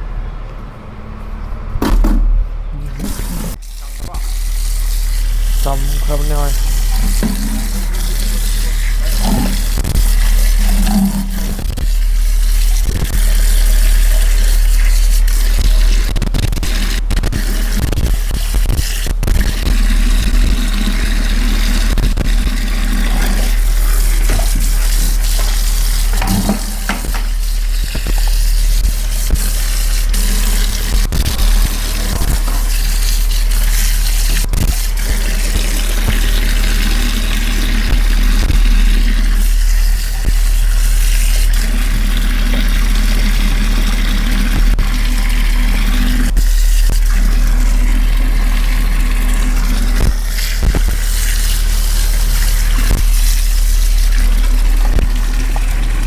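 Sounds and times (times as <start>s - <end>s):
machine hum: 0.0s - 44.5s
water spray hissing: 2.8s - 45.0s, 49.6s - 56.0s.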